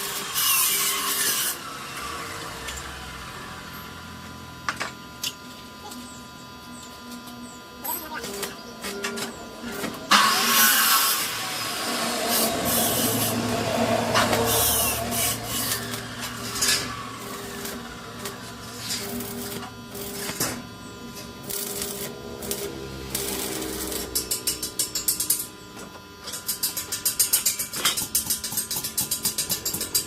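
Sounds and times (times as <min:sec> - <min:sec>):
metal scraping: 0:08.9 - 0:17.6
metalworking tool hissing: 0:10.1 - 0:17.6.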